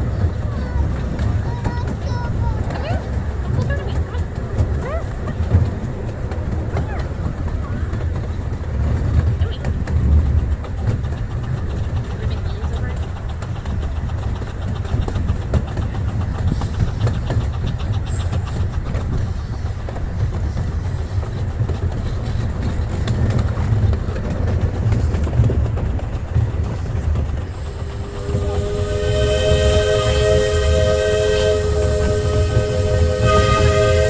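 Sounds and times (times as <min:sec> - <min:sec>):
clicking rail joints: 0:00.0 - 0:34.0
train wheels rumbling on rail: 0:00.0 - 0:34.0
steam chime whistle: 0:27.5 - 0:34.0.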